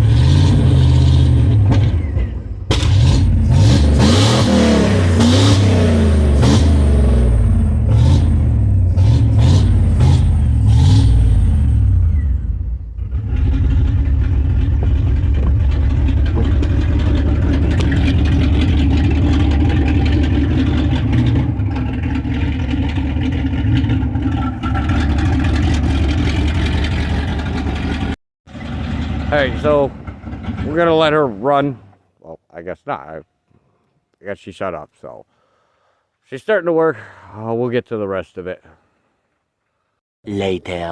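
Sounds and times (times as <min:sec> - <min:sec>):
truck engine revving and idling: 0:00.0 - 0:32.0.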